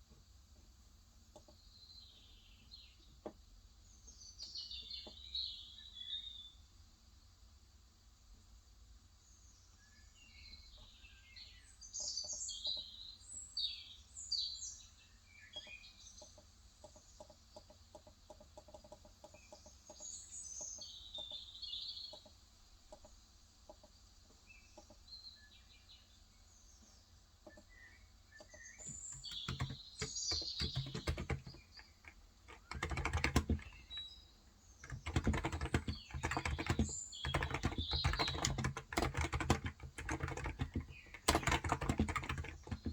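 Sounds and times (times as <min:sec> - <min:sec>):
birds chirping: 0:24.6 - 0:42.9
fast typing on keyboard: 0:28.8 - 0:34.1, 0:34.8 - 0:42.9.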